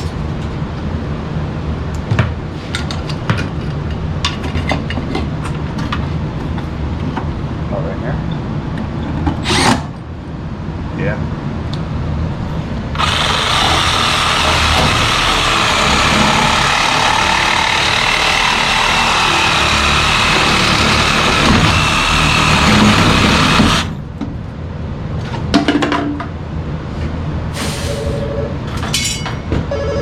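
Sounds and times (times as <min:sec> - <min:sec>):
loud steady machine noise: 0:09.4 - 0:09.9, 0:12.1 - 0:24.2
phone ringing: 0:29.7 - 0:30.0.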